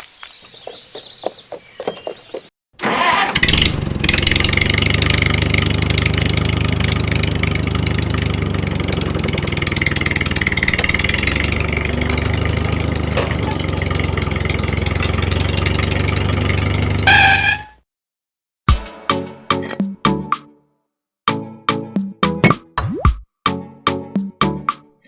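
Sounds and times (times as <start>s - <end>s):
small engine starting and idling: 2.8s - 17.6s.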